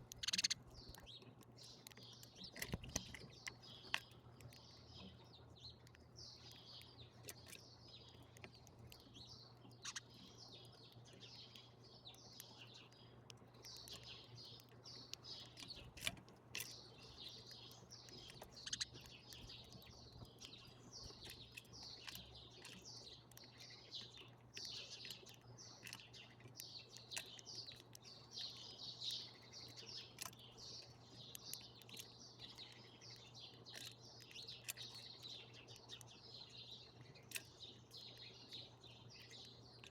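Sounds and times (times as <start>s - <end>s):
sharp ticks: 0.0s - 1.1s, 13.3s - 20.5s
small birds chirping: 0.0s - 39.9s.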